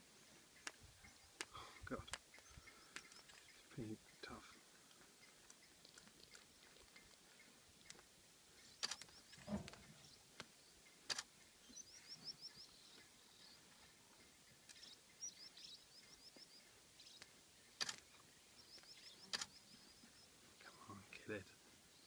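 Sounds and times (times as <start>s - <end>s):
bird chirping: 0.2s - 22.0s
sharp clicks: 8.8s - 9.8s, 11.1s - 11.3s, 17.1s - 18.1s, 18.8s - 19.6s.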